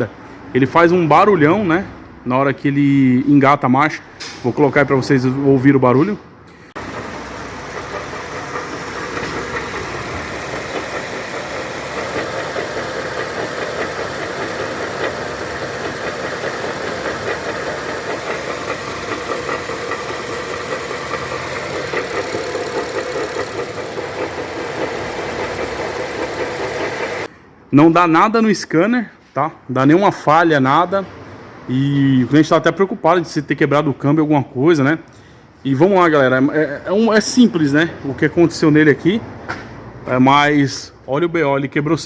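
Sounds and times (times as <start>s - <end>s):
fast clattering from car drivetrain: 6.8s - 27.3s.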